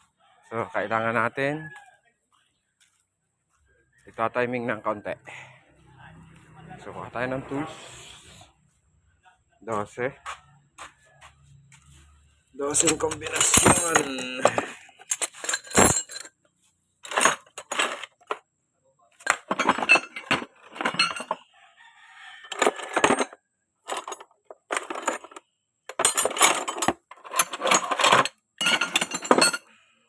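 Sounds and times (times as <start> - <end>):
metal hand tools clinking: 12.7 - 16.4, 17.0 - 18.4, 19.2 - 21.4, 22.5 - 29.8.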